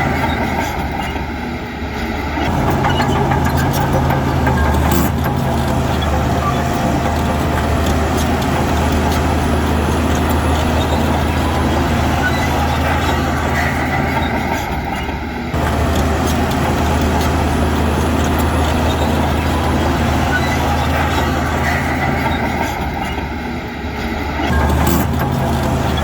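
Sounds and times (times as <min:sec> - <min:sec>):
diesel machinery engine running: 0:00.0 - 0:26.0.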